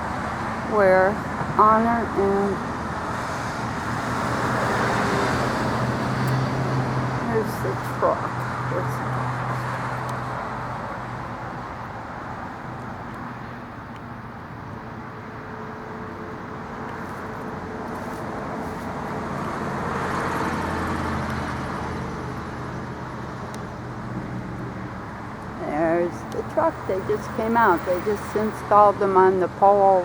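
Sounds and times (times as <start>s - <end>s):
road noise: 0.0s - 30.0s
vehicle engine running: 16.0s - 30.0s.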